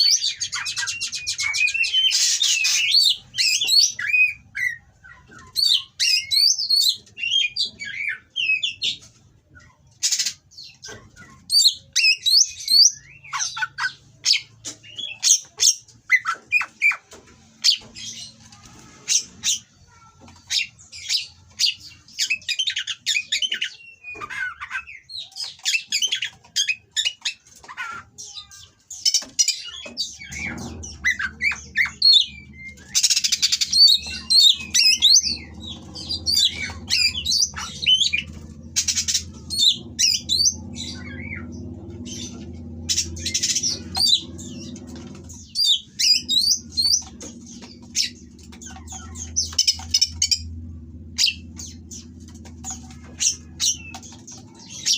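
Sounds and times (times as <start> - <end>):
bird singing: 0.0 - 54.9
low steady hum: 29.8 - 54.9.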